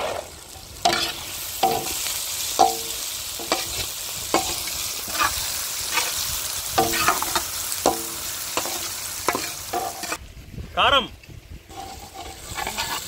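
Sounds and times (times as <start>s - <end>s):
vegetables sizzling in a pan: 0.0s - 10.3s, 11.7s - 13.0s
ladle scraping and knocking pan: 0.8s - 6.2s, 6.8s - 10.2s, 11.7s - 13.0s.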